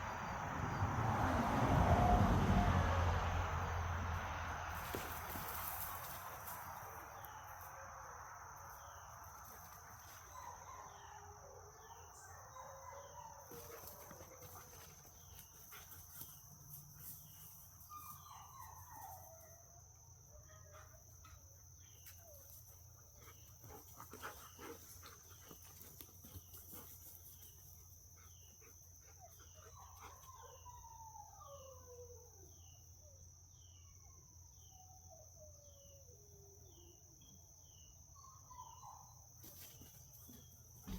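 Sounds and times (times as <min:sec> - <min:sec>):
insect drone: 0:00.0 - 0:12.7.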